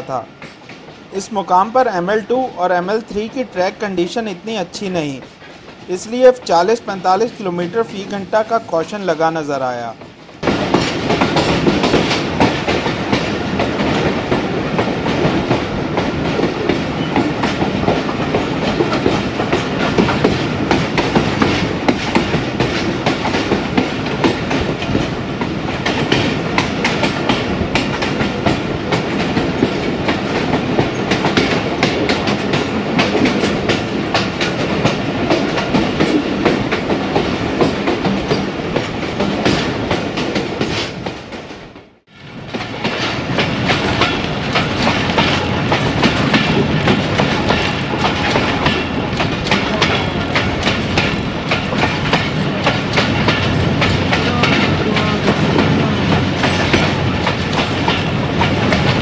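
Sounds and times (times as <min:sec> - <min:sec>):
train wheels clattering on rails: 0:00.0 - 0:59.0.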